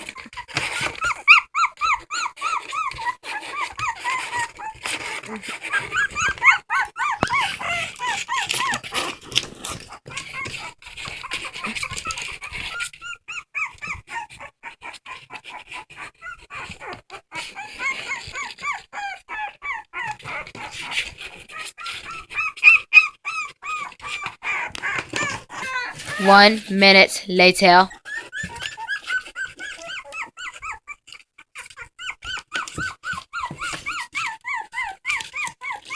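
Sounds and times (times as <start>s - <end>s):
dog whimpering: 0.0s - 8.8s, 10.1s - 20.7s, 28.1s - 31.0s, 31.6s - 35.9s.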